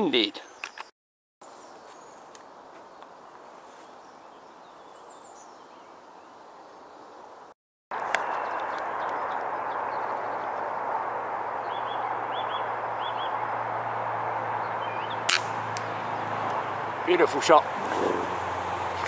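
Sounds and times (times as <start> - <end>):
bird chirping: 0.3 - 7.3, 8.0 - 10.9, 11.5 - 13.7, 14.5 - 16.3
air rifle shot: 15.3 - 15.8.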